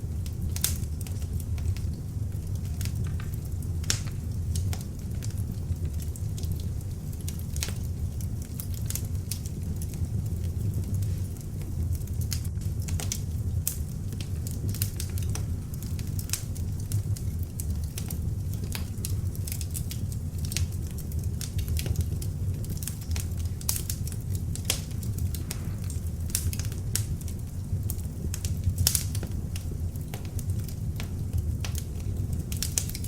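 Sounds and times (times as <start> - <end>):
logs crackling and popping: 0.0 - 33.0
low rumble of flames: 0.0 - 33.0.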